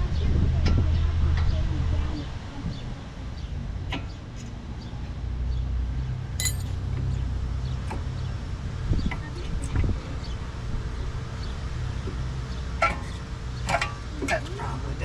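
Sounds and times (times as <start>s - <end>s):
ringing metal clink: 6.4s - 6.8s.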